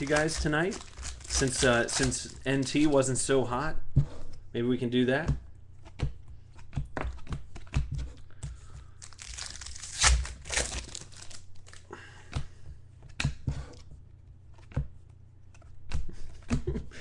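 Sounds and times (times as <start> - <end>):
card packaging tearing and crinkling: 0.0 - 3.0, 9.0 - 11.9.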